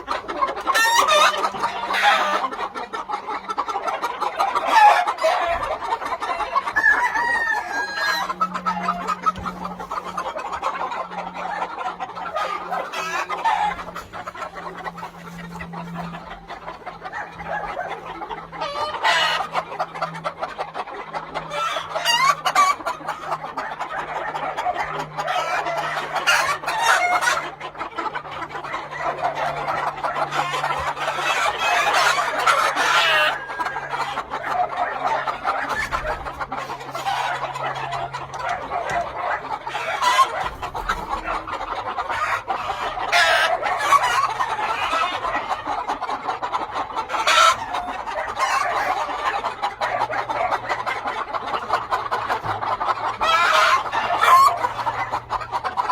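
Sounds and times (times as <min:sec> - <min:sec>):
chickens clucking: 0:00.0 - 0:55.9
rooster crowing: 0:06.6 - 0:09.7.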